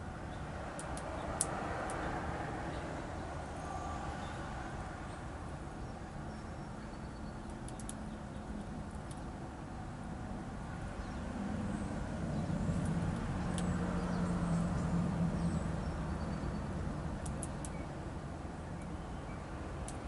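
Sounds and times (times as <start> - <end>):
songbird chirps: 0.1 - 9.9, 10.7 - 20.0
passing vehicle engine rumble: 10.2 - 18.6.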